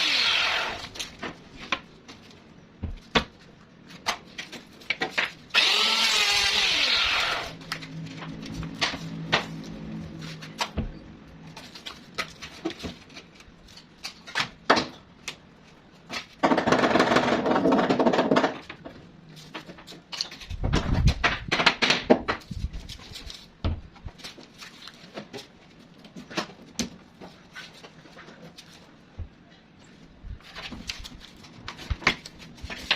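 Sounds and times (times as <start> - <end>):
wood and tools knocking: 16.1 - 19.0.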